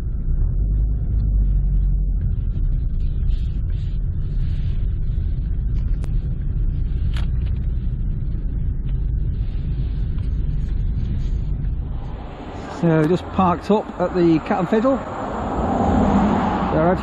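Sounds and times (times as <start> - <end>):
car cabin engine and tyre rumble: 0.0 - 17.0.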